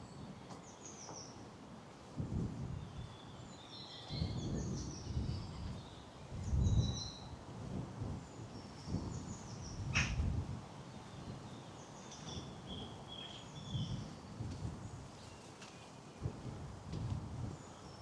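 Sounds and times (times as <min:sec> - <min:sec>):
small songbirds singing: 0:02.8 - 0:07.3, 0:08.2 - 0:16.0.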